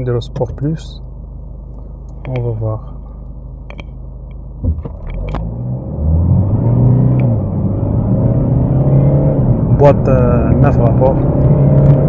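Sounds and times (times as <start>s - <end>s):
car engine accelerating: 4.6s - 12.0s.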